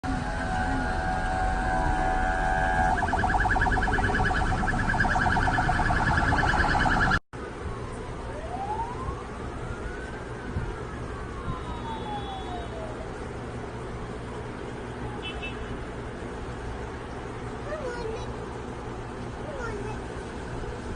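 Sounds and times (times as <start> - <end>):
distant siren wailing: 0.1 - 15.2
siren yelping: 0.2 - 7.2, 8.3 - 9.9, 10.5 - 13.1.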